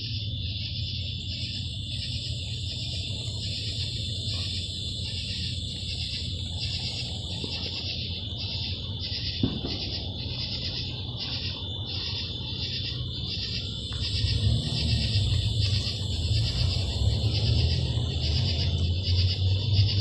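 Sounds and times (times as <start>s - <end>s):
insects pulsing shrill: 0.0s - 20.0s
low rumble: 8.2s - 20.0s.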